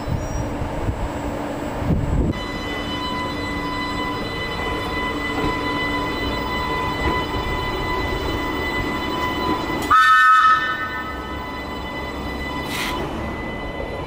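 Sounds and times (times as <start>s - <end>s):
electric train rumbling: 0.0s - 14.0s
multi-tone horn blast: 9.8s - 11.4s.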